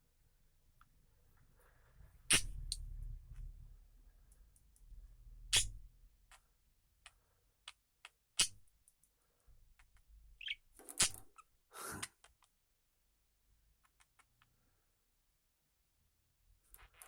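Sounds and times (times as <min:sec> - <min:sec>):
bird chirp: 0:10.4 - 0:11.5.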